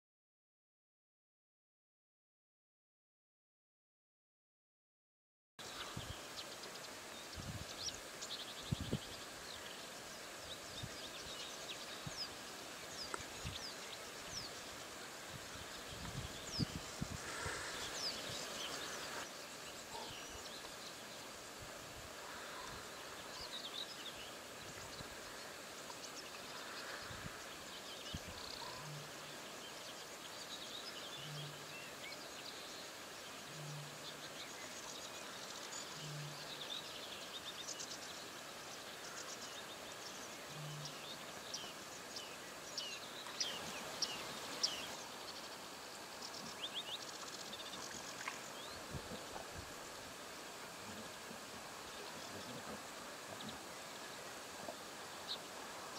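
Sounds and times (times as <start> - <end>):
birds chirping and trilling: 5.6 - 21.2.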